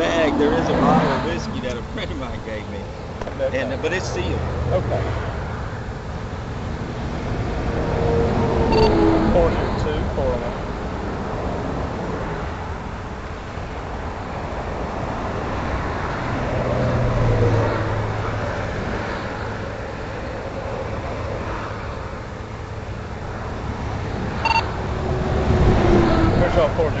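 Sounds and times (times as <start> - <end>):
highway traffic passing: 0.0 - 27.0
vehicle engine drone: 0.0 - 27.0
short electronic beep: 8.7 - 9.0, 24.4 - 24.7.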